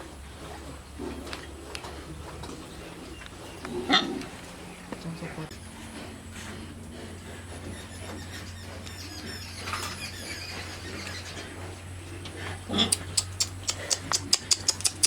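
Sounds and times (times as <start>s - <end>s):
steady low hum: 0.0s - 15.0s
pigs squealing faintly: 7.4s - 15.0s.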